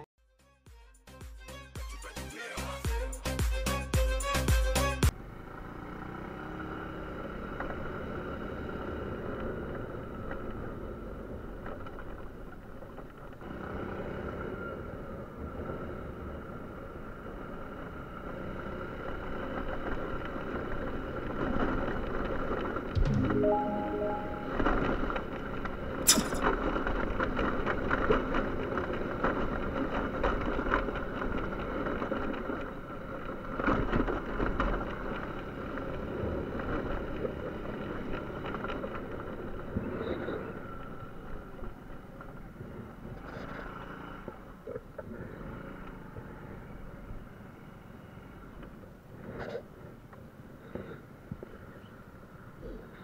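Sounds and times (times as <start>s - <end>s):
small motorcycle engine running: 5.2s - 11.6s.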